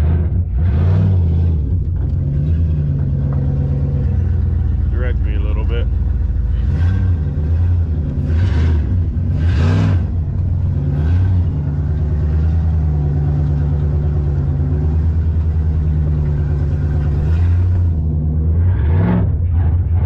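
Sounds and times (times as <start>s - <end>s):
pickup truck engine revving: 0.0s - 20.0s.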